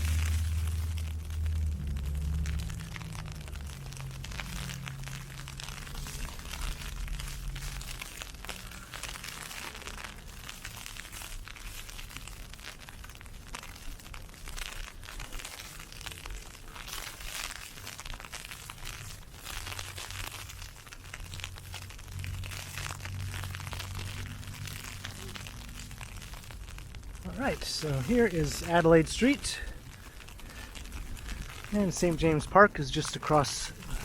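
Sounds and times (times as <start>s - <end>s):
low hum: 0.0s - 10.3s, 18.8s - 34.0s
ice pellets pelting an umbrella: 0.0s - 34.0s.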